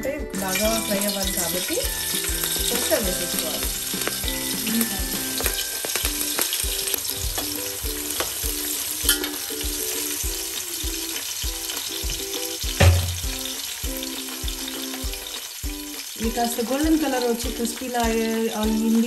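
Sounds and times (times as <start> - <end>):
chillies sizzling in hot oil: 0.3 - 19.0
loud knock: 12.8 - 13.3.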